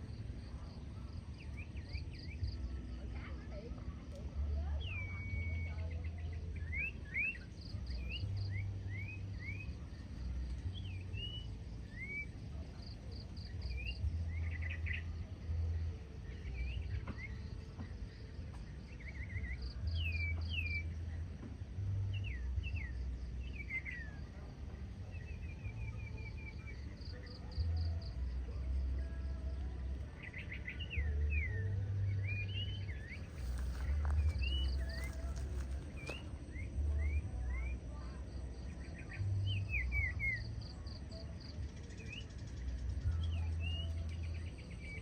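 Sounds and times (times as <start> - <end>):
whistled bird song: 4.4 - 15.6, 16.2 - 21.2, 21.9 - 45.0
low rumble: 31.0 - 41.0.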